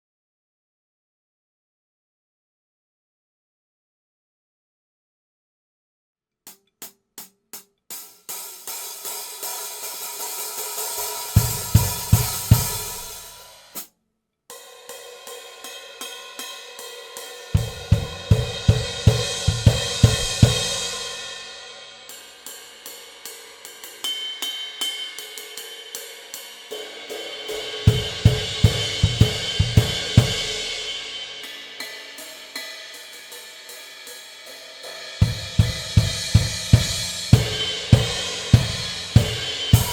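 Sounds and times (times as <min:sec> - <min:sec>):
hi-hat and ride patterns: 0:06.5 - 0:13.9, 0:17.5 - 0:21.2, 0:21.9 - 0:39.9
cymbal strikes: 0:08.3 - 0:13.8, 0:14.5 - 0:39.9
crash cymbal hits: 0:14.9 - 0:39.9
kick drum and snare: 0:17.6 - 0:20.9, 0:27.9 - 0:30.7, 0:35.2 - 0:39.9.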